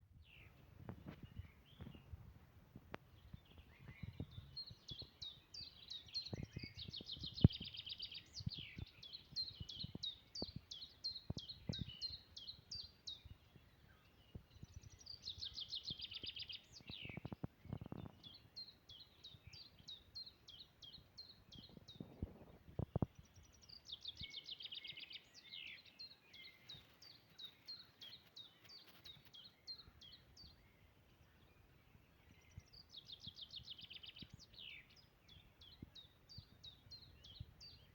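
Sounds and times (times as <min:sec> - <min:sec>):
songbird chirping and trilling: 0:00.0 - 0:02.2, 0:02.9 - 0:37.9.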